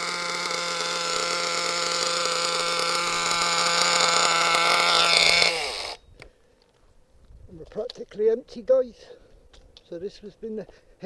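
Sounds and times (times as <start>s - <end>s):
nitro engine idling: 0.0s - 6.0s.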